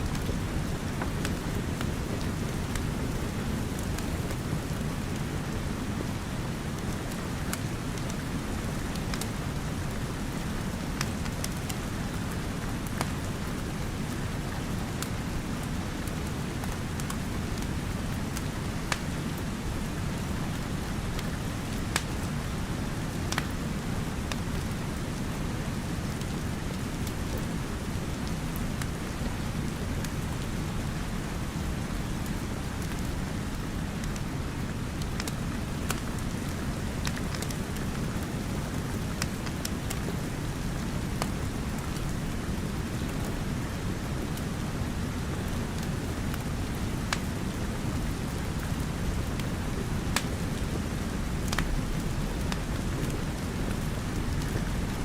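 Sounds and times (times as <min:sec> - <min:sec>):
fireplace fire crackling: 0:00.0 - 0:55.0
steady rain: 0:00.0 - 0:55.0.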